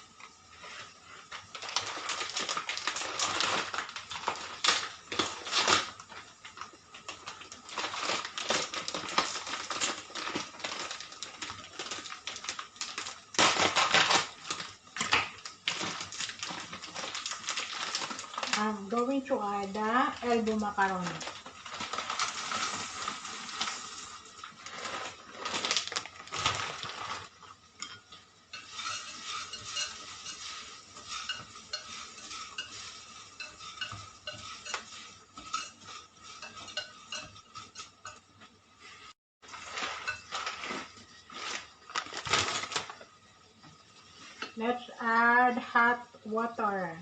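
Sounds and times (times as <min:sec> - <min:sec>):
light sizzle: 0:00.0 - 0:47.0
utensil scraping pot: 0:26.3 - 0:41.8.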